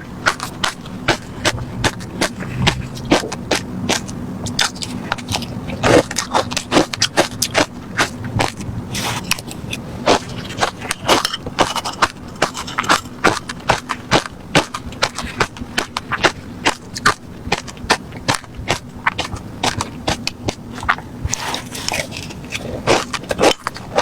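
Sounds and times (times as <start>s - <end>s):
faint steady hum: 0.0s - 24.0s
ice being chewed: 0.0s - 24.0s.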